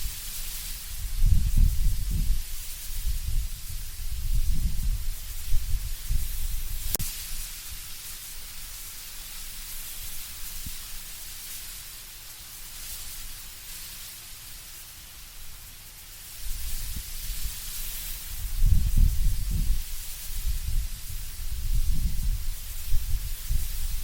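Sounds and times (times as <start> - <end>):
leaves rustling in wind: 0.0 - 24.0
low wind gusts rumbling: 0.9 - 7.0, 18.3 - 24.0.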